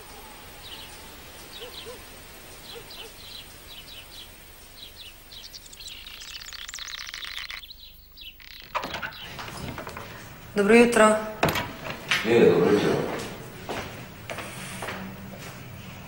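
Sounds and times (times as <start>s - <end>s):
small birds chirping: 0.0s - 11.2s.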